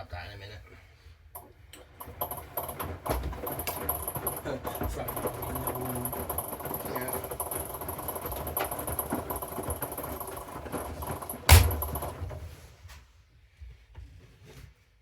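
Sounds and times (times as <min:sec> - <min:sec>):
washing machine rattling: 0:01.4 - 0:12.7
loud knock: 0:11.5 - 0:12.1.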